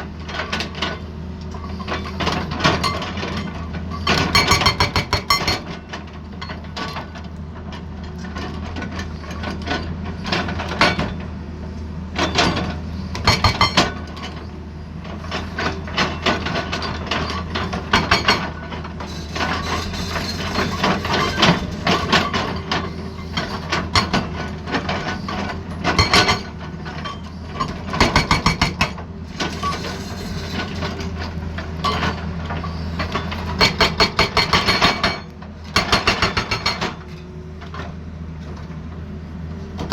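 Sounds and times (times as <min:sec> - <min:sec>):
hydraulic breaker hammering: 0:04.1 - 0:05.7, 0:13.2 - 0:14.0, 0:33.6 - 0:37.0.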